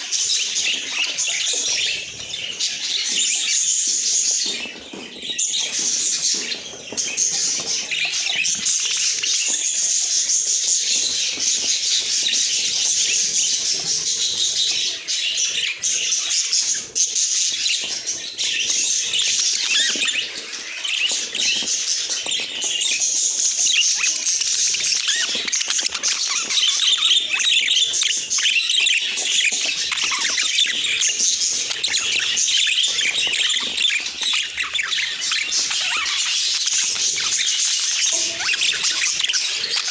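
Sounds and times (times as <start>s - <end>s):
budgerigars chirping and warbling: 0.0s - 39.9s.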